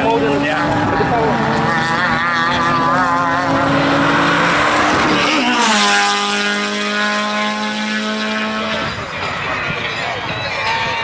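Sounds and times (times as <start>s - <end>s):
race car engine revving: 0.0s - 10.2s.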